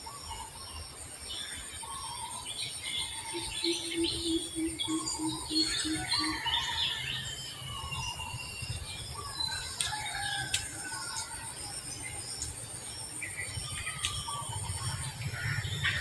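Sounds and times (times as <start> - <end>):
birds calling: 0.0 - 16.0
sharp clicks: 14.0 - 14.3.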